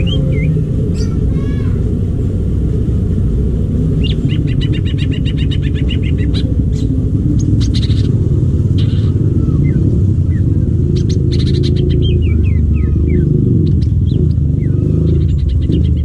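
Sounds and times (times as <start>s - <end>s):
bird singing high notes: 0.0s - 1.8s
low steady rumble: 0.0s - 16.0s.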